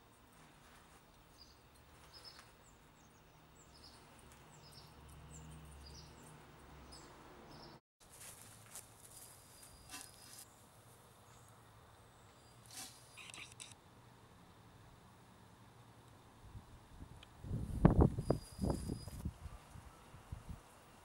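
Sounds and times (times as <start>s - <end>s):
small bird chirping: 18.2s - 19.2s.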